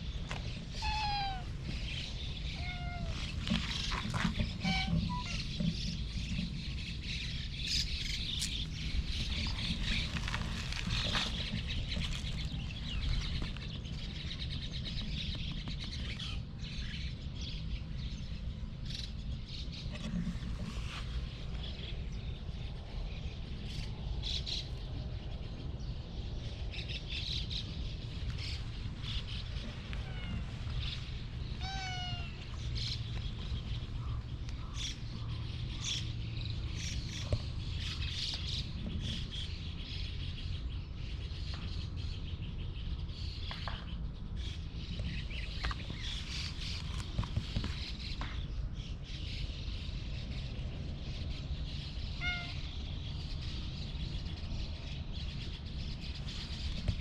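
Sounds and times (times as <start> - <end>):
low outdoor rumble: 0.0 - 57.0
cat meowing: 0.8 - 1.6, 2.5 - 3.4, 4.6 - 5.4, 30.0 - 30.4, 31.6 - 32.4, 52.2 - 52.6.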